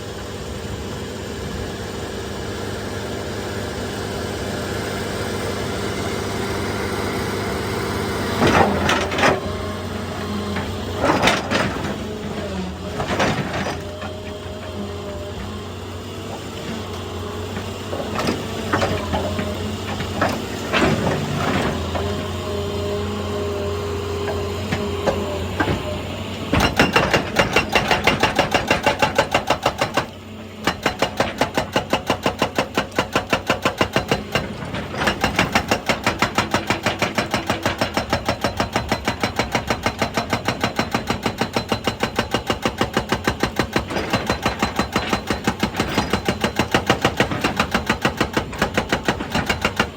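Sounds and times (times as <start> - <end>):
diesel engine running: 0.0 - 31.3
hydraulic rock breaker hammering: 7.3 - 49.9.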